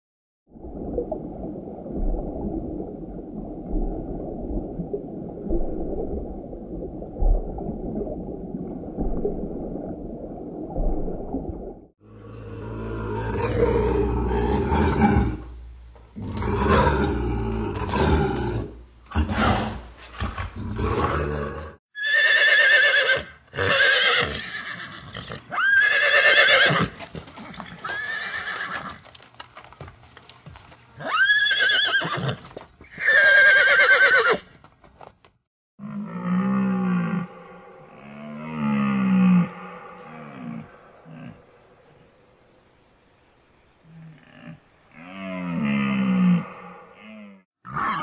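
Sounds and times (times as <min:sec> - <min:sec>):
horse whinnying: 0:20.7 - 0:29.0, 0:31.0 - 0:34.5, 0:47.7 - 0:48.0.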